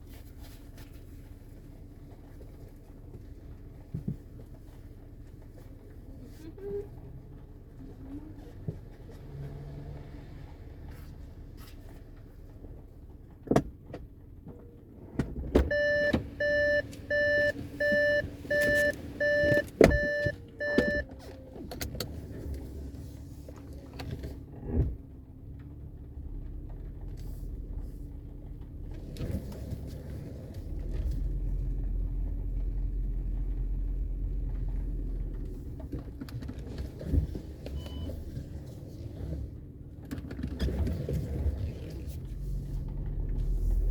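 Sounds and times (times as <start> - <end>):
car engine rumbling: 0.0 - 43.9
car warning chime beeping: 15.7 - 21.1
car door thuds: 19.8 - 20.1.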